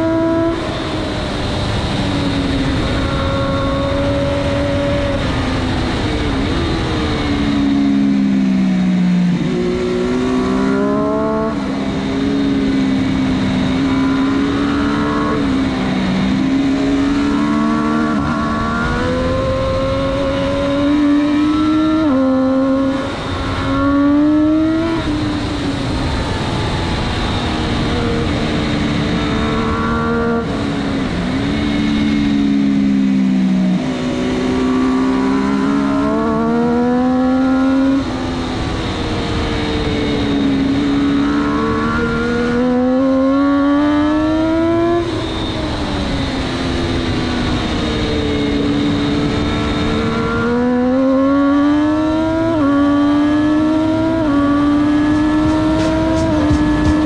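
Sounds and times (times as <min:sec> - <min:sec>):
motorcycle engine at race pace: 0:00.0 - 0:57.0
wind rush: 0:53.8 - 0:57.0.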